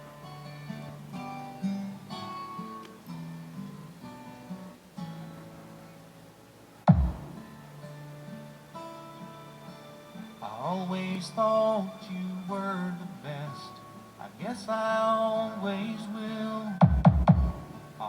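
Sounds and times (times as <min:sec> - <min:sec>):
plucked acoustic guitar: 0:00.0 - 0:18.0
loud boom sweeping down: 0:06.9 - 0:07.4.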